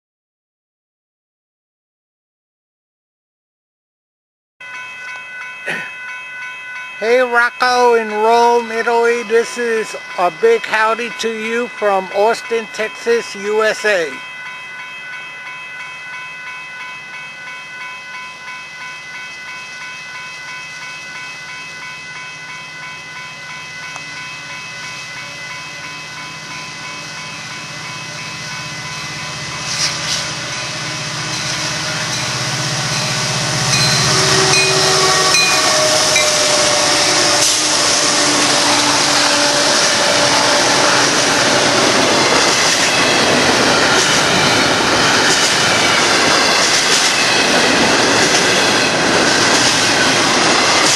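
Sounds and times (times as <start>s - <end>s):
diesel locomotive engine rumble: 4.7s - 50.9s
train wheels on rails clatter: 29.5s - 30.7s, 31.3s - 50.9s.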